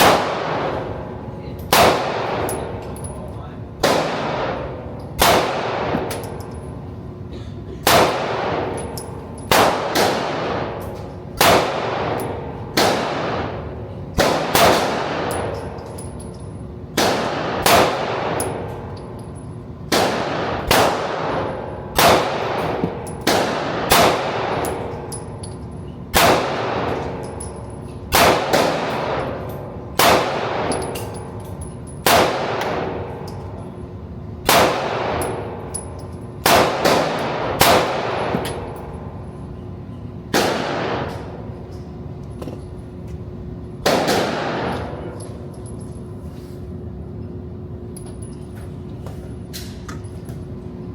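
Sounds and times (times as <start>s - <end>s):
gunshots with clanging echo: 0.0s - 3.0s, 3.8s - 6.6s, 7.8s - 16.2s, 16.9s - 18.9s, 19.9s - 25.1s, 26.1s - 31.4s, 32.0s - 33.4s, 34.5s - 35.7s, 36.4s - 38.8s, 40.3s - 41.4s, 43.8s - 45.2s.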